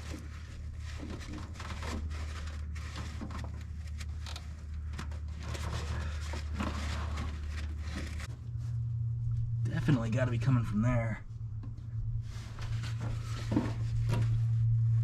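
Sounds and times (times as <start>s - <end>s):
handling scrapes: 0.0s - 8.8s, 12.2s - 15.0s
rags rubbing and rustling: 0.0s - 8.8s, 12.2s - 15.0s
steady low hum: 0.0s - 15.0s.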